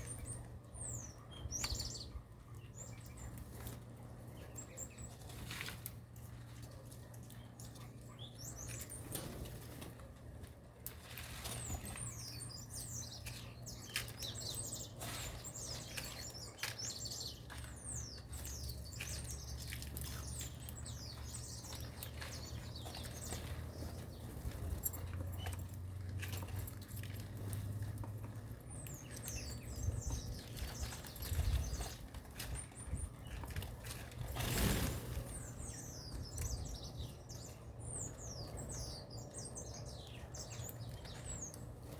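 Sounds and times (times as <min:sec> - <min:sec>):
low steady hum: 0:00.0 - 0:41.9
small birds chirping: 0:00.0 - 0:41.9
wing flutters: 0:33.4 - 0:35.6.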